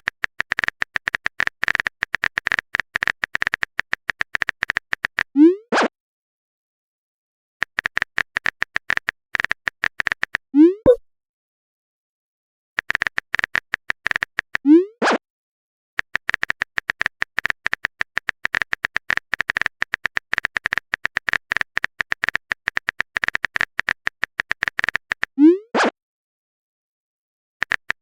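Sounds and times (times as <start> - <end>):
phone keyboard typing clicks: 0.0 - 5.3, 7.6 - 11.0, 12.8 - 14.6, 16.0 - 25.4, 27.6 - 28.0
message sent swoop and pop: 5.6 - 5.9, 15.0 - 15.2, 25.6 - 26.0.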